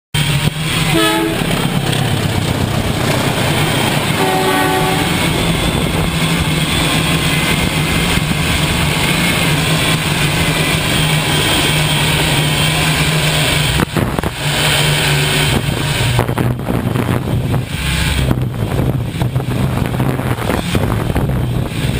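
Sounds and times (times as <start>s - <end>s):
train rumbling past: 0.2s - 21.9s
train horn tone: 0.7s - 1.8s, 4.0s - 5.5s.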